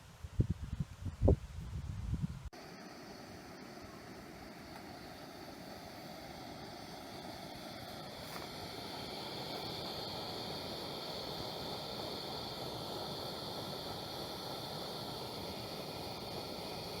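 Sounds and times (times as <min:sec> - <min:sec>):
background hiss: 0:00.0 - 0:17.0
faint high-pitched hum: 0:01.7 - 0:12.0.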